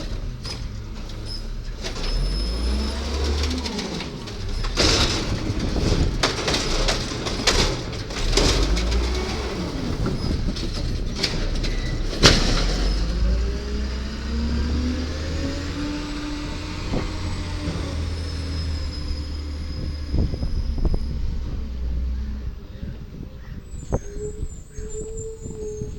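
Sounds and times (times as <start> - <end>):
metal clanks and bangs: 0.0 - 13.8
truck engine running: 0.0 - 23.3
hydraulic whine: 8.2 - 22.6.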